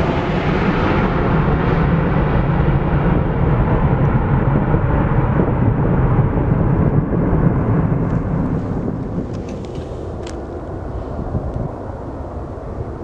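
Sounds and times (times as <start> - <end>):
jet airliner engines roaring: 0.0 - 13.0.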